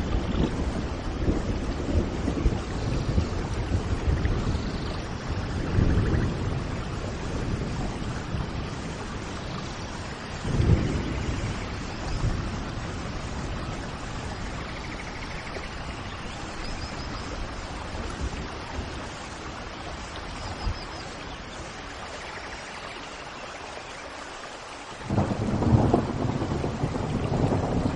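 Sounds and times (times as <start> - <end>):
thunder rolling: 0.0 - 16.0, 25.0 - 27.9
steady rain: 0.0 - 27.9.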